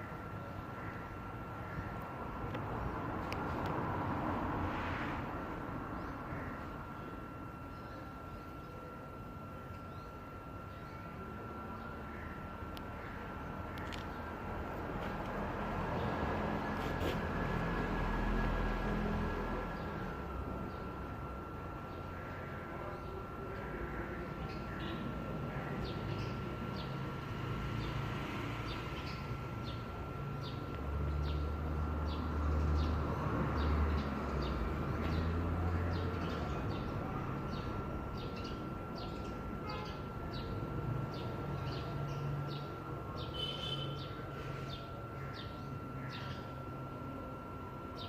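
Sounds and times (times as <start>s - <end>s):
steady high hum: 0.0s - 48.0s
birds chirping: 5.8s - 17.9s, 19.6s - 48.0s.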